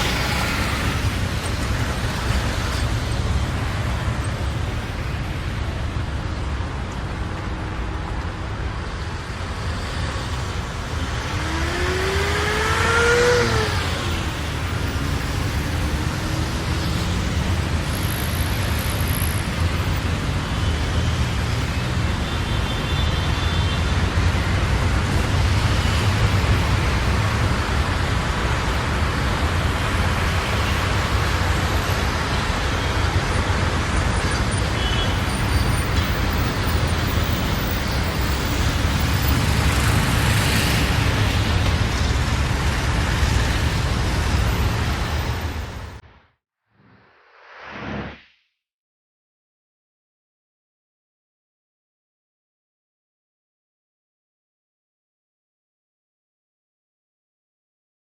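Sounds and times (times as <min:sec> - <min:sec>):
road traffic rumble: 0:00.0 - 0:46.2
vehicle passing by: 0:11.1 - 0:14.4.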